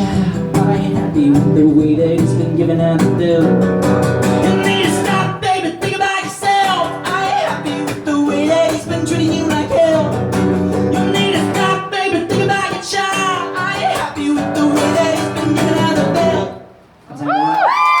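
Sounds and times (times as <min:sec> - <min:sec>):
acoustic guitar strumming: 0:00.0 - 0:16.8
wordless singing: 0:10.8 - 0:16.6.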